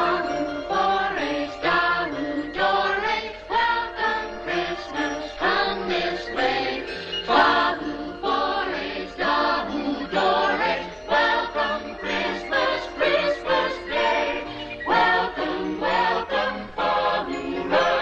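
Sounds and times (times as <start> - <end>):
choir singing: 0.0 - 18.0.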